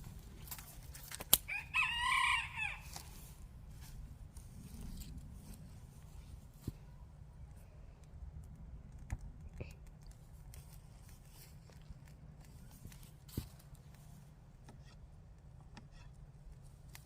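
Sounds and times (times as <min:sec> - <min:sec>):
rooster crowing: 0:01.4 - 0:03.3.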